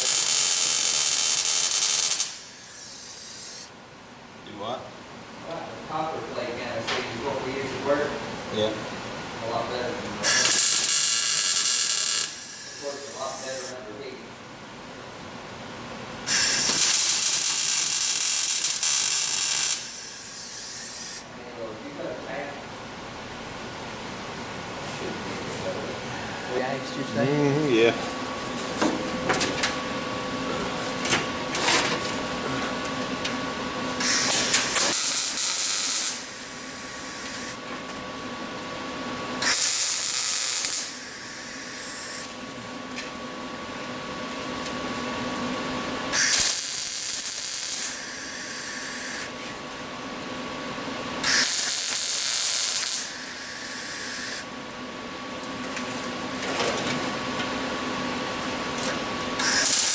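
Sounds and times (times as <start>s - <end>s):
welder buzzing: 0.0s - 3.7s, 10.2s - 13.8s, 16.2s - 21.3s, 33.9s - 37.6s, 39.4s - 42.4s, 46.1s - 49.4s, 51.2s - 54.5s, 58.8s - 59.9s
steady background hum: 0.0s - 59.9s.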